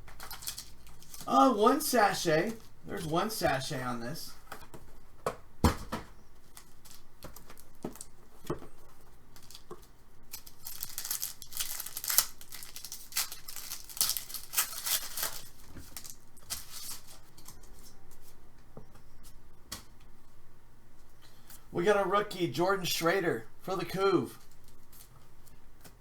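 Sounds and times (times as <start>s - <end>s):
wrapping tearing and crinkling: 0.0s - 3.1s, 6.4s - 8.2s, 9.3s - 18.0s, 24.4s - 25.6s.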